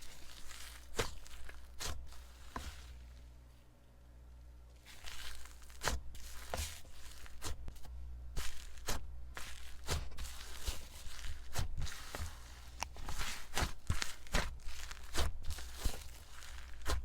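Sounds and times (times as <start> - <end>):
slime squished by hand: 0.0 - 3.0, 4.8 - 17.0.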